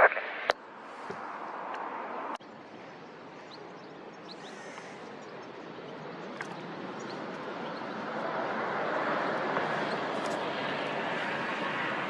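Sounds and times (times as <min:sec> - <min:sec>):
jet engine rumble: 0:00.0 - 0:00.6.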